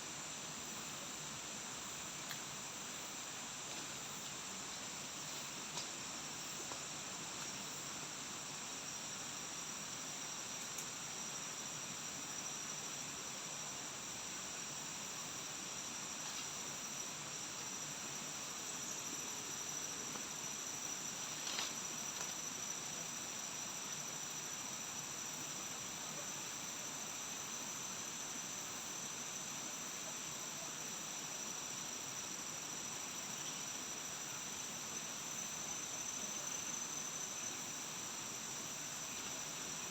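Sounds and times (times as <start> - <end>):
insects droning: 0.0 - 39.9
soft hiss: 0.0 - 39.9.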